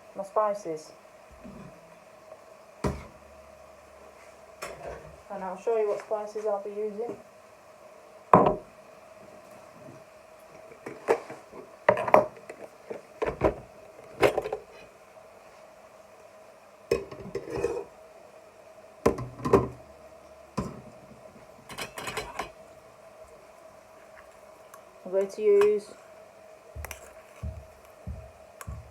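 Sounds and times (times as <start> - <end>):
faint steady hum: 0.0 - 28.9
kitchen utensils clinking and knocking: 21.7 - 22.6.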